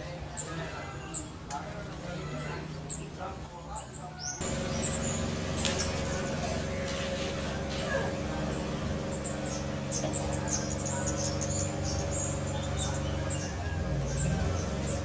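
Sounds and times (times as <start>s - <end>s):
birds chirping high and thin: 0.0s - 15.0s
steady low hum: 4.4s - 15.0s.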